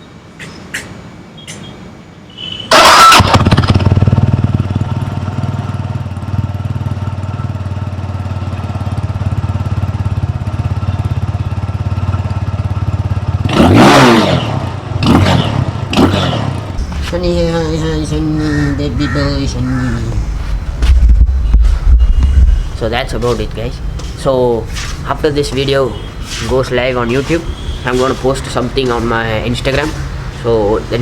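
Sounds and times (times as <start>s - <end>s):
engine revving: 2.7s - 6.4s, 13.4s - 31.0s
motorcycle engine starting and idling: 2.7s - 25.8s.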